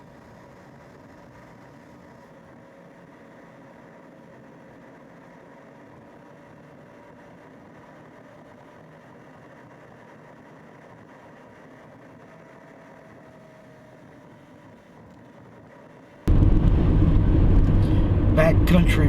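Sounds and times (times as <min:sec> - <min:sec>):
vehicle engine hum: 0:00.0 - 0:19.0
faint rising tone: 0:16.3 - 0:19.0
road noise: 0:16.3 - 0:19.0.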